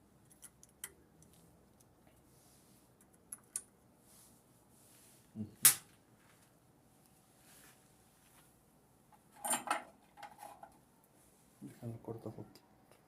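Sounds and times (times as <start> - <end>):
metal parts clicking and tapping: 0.2 - 1.0.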